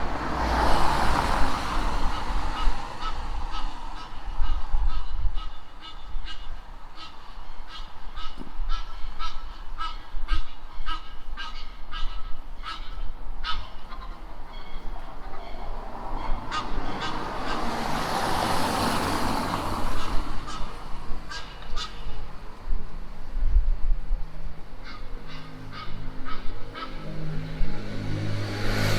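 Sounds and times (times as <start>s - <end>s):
broad rushing noise: 0.0s - 5.3s.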